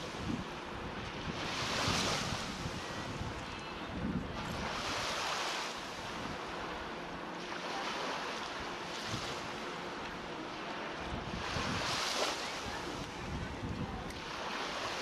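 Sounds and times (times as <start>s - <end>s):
wind buffeting microphone: 0.0s - 5.1s, 11.0s - 14.5s.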